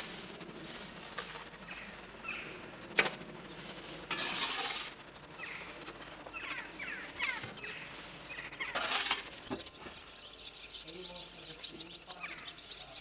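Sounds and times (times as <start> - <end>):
birds chirping: 5.0 - 13.0.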